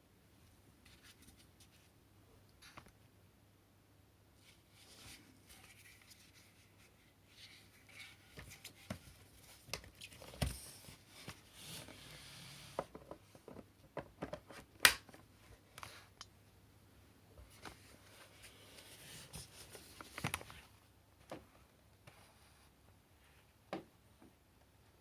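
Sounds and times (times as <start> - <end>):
soft rustling: 4.4 - 12.3.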